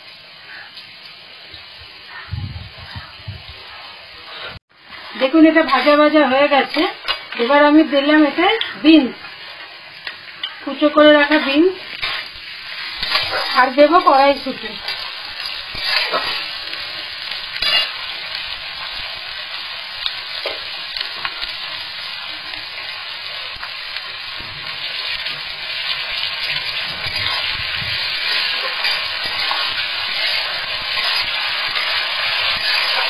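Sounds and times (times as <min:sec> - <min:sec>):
vegetables sizzling in oil: 0:00.0 - 0:33.0
steel spatula scraping a pan: 0:12.0 - 0:16.6, 0:17.6 - 0:18.0, 0:26.4 - 0:33.0.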